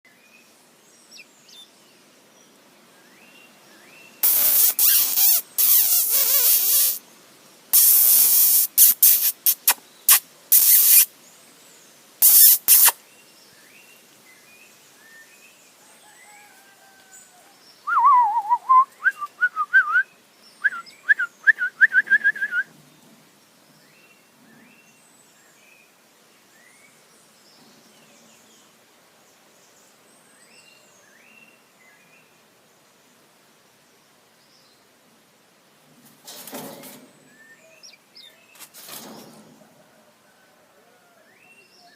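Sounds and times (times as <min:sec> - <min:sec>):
faint small chirps: 0:12.2 - 0:13.0
bird whistling gliding notes: 0:17.9 - 0:22.7.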